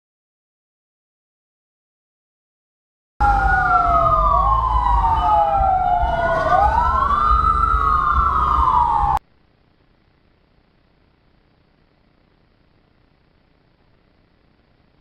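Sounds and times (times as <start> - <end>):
emergency sirens wailing: 3.2 - 9.2
low rumble: 3.2 - 9.2.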